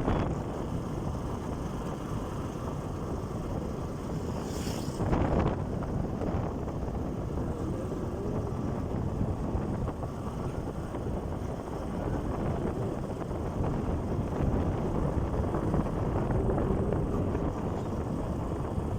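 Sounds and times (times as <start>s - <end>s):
motorcycle engine drone: 0.0s - 18.9s
wind buffeting microphone: 0.0s - 18.9s.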